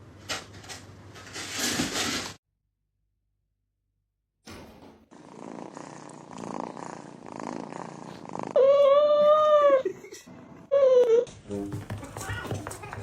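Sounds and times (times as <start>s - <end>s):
cat purring: 5.1s - 9.2s.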